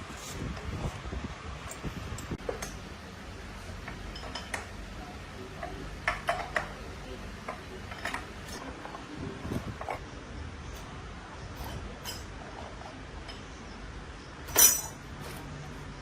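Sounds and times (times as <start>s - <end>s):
steady low hum: 0.0s - 16.0s
metal tools clinking: 3.8s - 10.0s, 11.5s - 13.6s, 14.4s - 15.5s.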